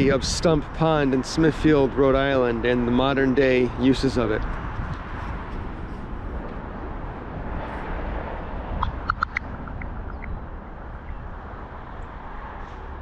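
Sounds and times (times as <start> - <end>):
wind rumble on microphone: 0.0 - 13.0
bird chirps: 8.8 - 11.3.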